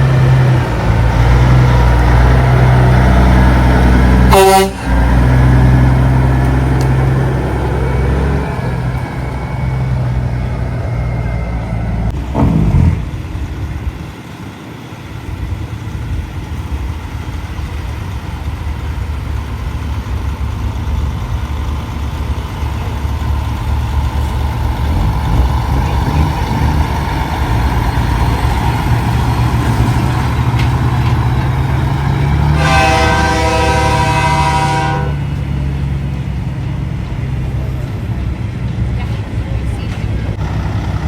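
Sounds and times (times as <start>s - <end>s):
diesel truck engines running: 0.0s - 41.0s
truck horn toot: 4.2s - 5.3s, 32.4s - 35.4s.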